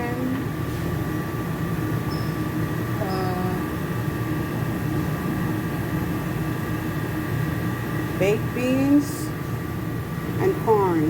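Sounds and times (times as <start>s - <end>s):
machine hum with faint whine: 0.0s - 11.0s.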